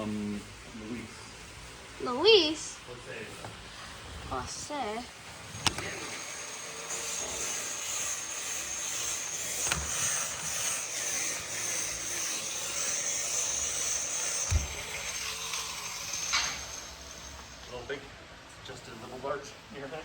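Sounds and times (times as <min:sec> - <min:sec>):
welder arc hissing: 0:05.6 - 0:18.0.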